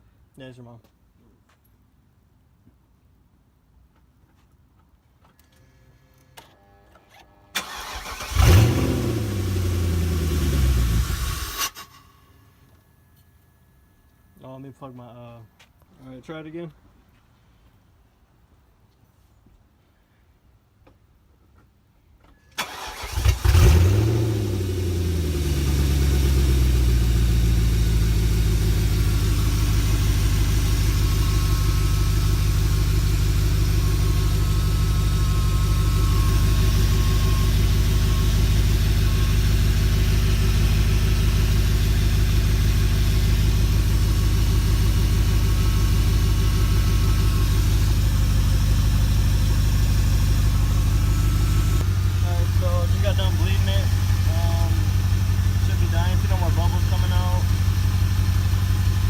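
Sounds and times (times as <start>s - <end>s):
car engine starting and idling: 7.1s - 13.0s, 22.5s - 59.0s.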